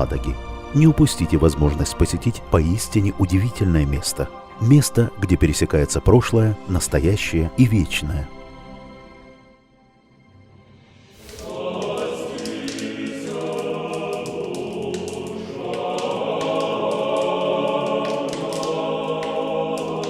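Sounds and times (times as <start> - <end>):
choir singing a chant: 11.2 - 20.0.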